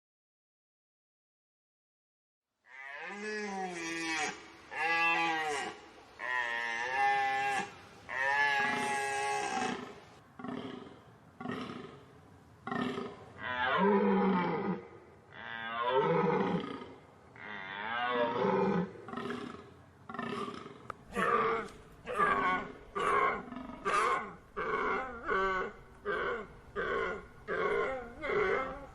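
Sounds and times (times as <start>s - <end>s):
deer calling: 2.8s - 10.0s.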